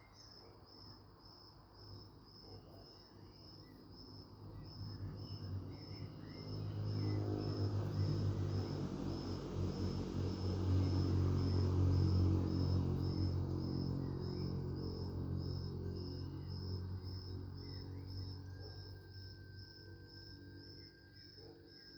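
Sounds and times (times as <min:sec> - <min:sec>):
cricket chirping: 0:00.0 - 0:21.9
low rumble of passing vehicle: 0:04.2 - 0:21.5.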